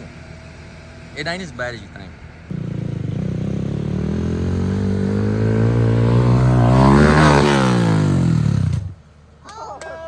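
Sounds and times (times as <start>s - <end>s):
dirt bike engine passing: 2.5s - 9.0s.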